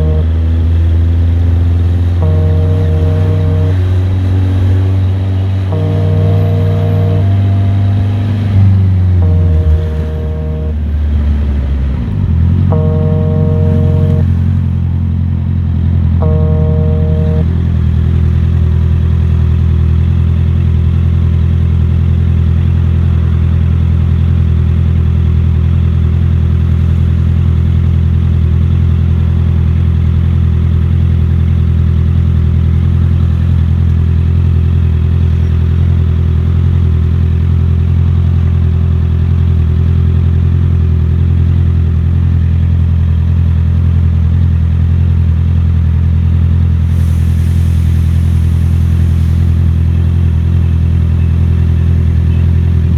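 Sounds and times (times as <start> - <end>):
motorcycle engine running: 0.0 - 46.7.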